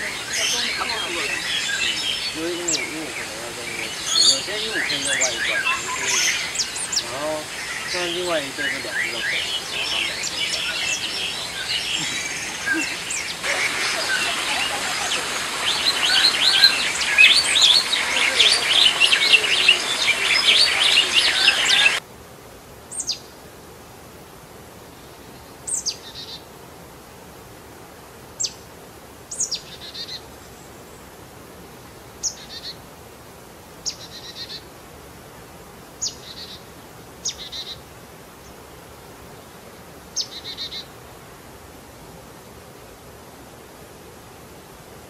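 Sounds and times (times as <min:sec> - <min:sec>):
bird whistle and buzzy trill: 0:00.0 - 0:22.0
chorus of birds chirping: 0:00.0 - 0:22.0, 0:40.2 - 0:40.9
faint hiss: 0:00.0 - 0:45.0.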